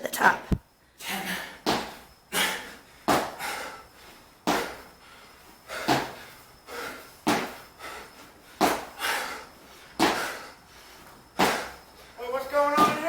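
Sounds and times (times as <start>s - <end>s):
feet thudding on floor: 3.1s - 3.5s, 4.4s - 4.8s, 5.7s - 7.6s, 8.6s - 9.0s, 10.0s - 10.4s, 11.4s - 11.8s, 12.7s - 13.0s.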